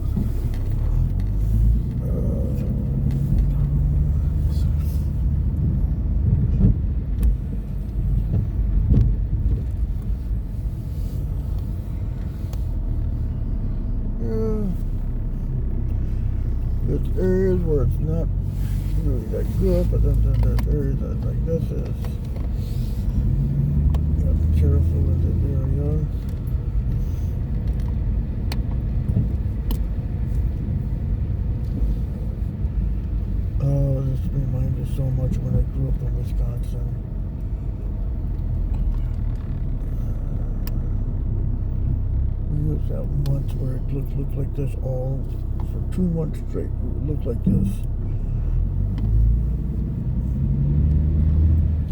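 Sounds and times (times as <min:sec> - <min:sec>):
car engine and tyre rumble: 0:00.0 - 0:51.9.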